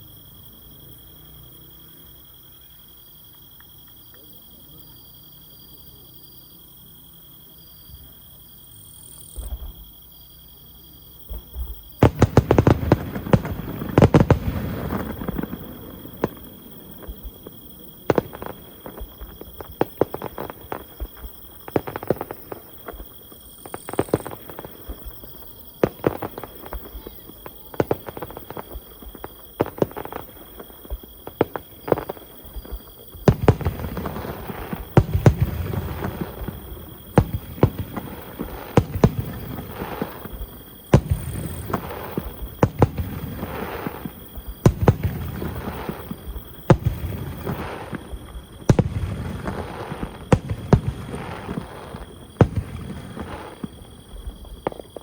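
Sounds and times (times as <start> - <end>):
fireworks bursting: 11.2 - 55.0.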